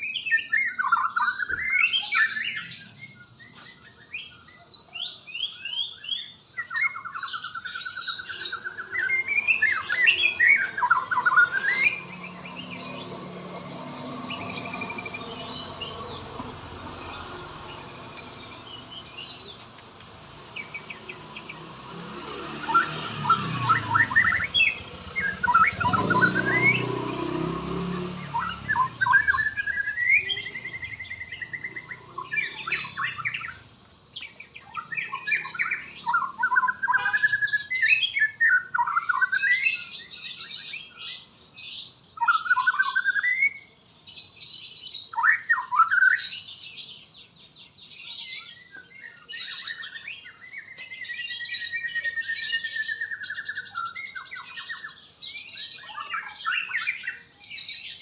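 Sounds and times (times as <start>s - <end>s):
songbird singing: 0.0s - 58.0s.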